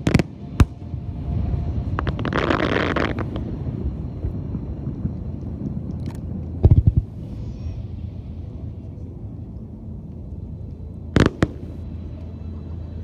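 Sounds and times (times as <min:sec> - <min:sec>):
sharp fireworks bangs: 0:00.0 - 0:01.0, 0:02.0 - 0:03.5, 0:11.2 - 0:11.8
low rumble of echoing bursts: 0:00.0 - 0:13.0
fireworks shells crackling: 0:02.0 - 0:03.5, 0:11.2 - 0:11.8.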